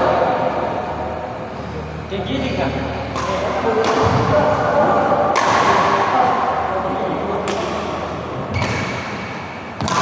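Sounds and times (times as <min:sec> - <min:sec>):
noisy background: 0:00.0 - 0:10.0
badminton racket hitting shuttlecock: 0:03.1 - 0:04.5, 0:05.3 - 0:06.0, 0:08.6 - 0:10.0.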